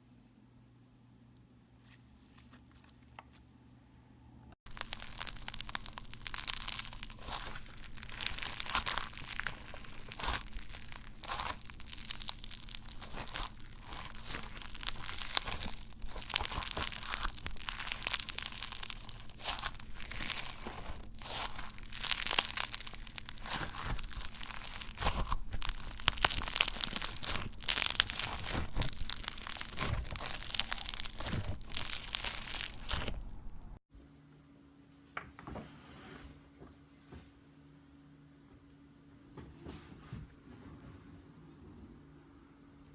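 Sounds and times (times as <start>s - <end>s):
slime squeezed by hand: 4.7s - 33.4s.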